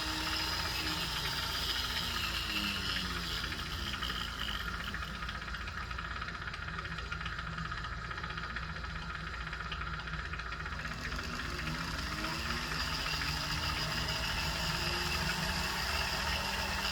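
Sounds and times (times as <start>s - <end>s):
rotary tool grinding metal: 0.0s - 6.0s, 10.7s - 16.9s.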